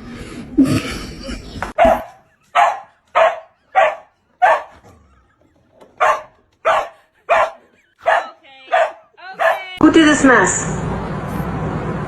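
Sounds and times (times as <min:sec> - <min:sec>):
dog barking: 0:01.8 - 0:04.9, 0:06.0 - 0:09.8.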